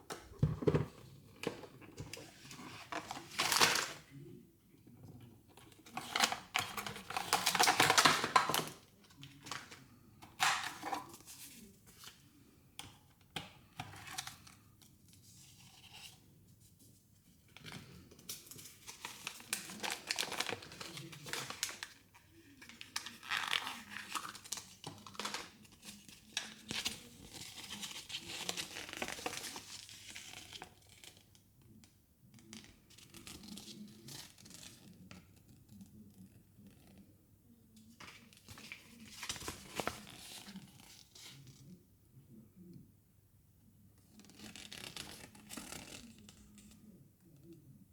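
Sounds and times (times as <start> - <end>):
plastic packaging crinkling: 5.9 - 8.8, 18.9 - 21.9
plastic packaging tearing: 5.9 - 8.8, 10.4 - 11.1, 19.0 - 21.9, 22.7 - 25.5.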